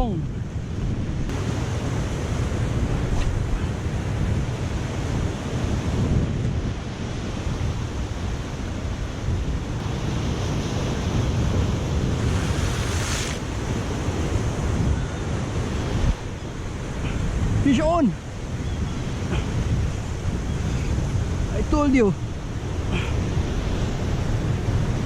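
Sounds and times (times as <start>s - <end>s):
wind buffeting the microphone: 0.0s - 25.0s
ocean surf breaking: 1.3s - 6.1s, 7.1s - 24.3s.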